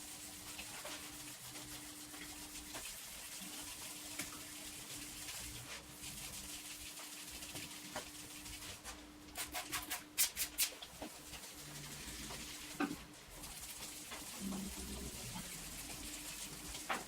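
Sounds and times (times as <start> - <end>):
spray bottle squirting water: 9.4 - 10.8.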